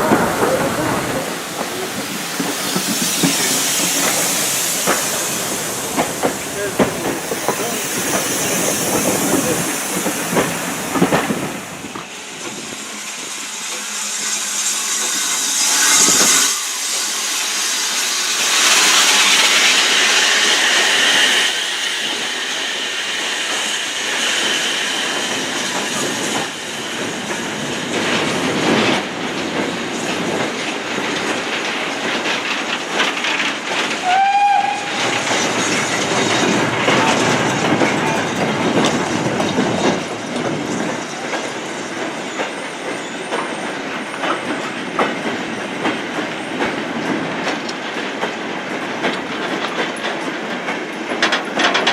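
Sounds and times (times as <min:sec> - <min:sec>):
wheels clattering over rail joints: 0:00.0 - 0:13.9, 0:25.2 - 0:51.9
steam hissing: 0:00.0 - 0:51.1.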